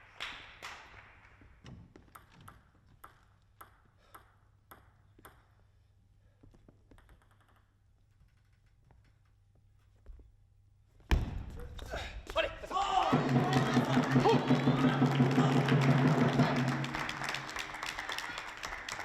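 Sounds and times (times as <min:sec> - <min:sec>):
table tennis ball clicks: 0:02.0 - 0:05.6.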